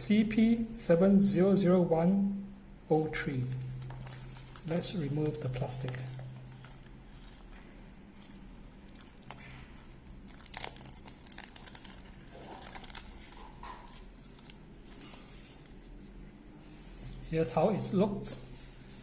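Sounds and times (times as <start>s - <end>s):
low steady hum: 0.0s - 19.0s
plastic film crinkling: 3.0s - 17.2s.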